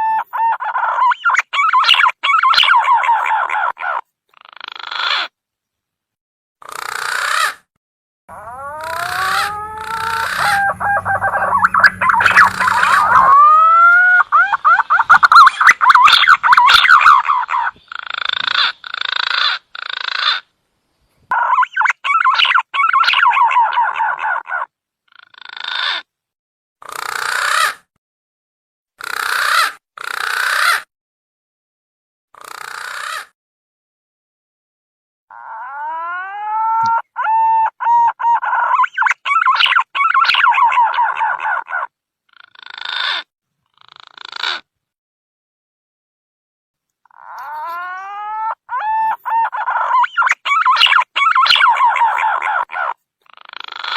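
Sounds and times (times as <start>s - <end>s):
pigeon calls buzzy trills: 0.0s - 5.4s, 6.6s - 7.7s, 8.3s - 20.5s, 21.3s - 26.1s, 26.8s - 27.9s, 29.0s - 30.9s, 32.4s - 33.4s, 35.3s - 44.7s, 47.1s - 53.9s
hoarse bird phrases: 8.3s - 19.1s, 21.3s - 24.7s, 37.0s - 43.0s, 47.1s - 53.9s
green pigeon whistling song: 8.4s - 17.8s, 36.8s - 41.3s, 48.8s - 52.5s
wavering gliding whistles: 8.8s - 13.6s.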